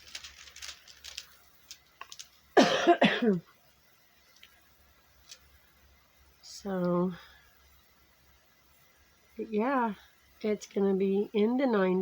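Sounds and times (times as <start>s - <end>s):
woman coughing: 2.6s - 3.4s.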